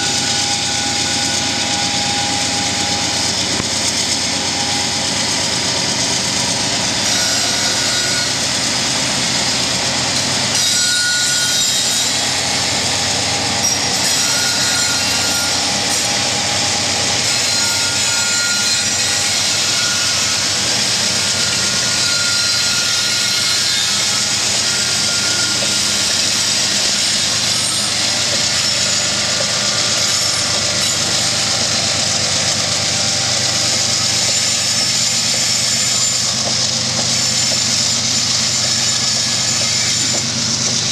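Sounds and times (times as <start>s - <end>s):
locomotive engines droning: 0.0s - 40.9s.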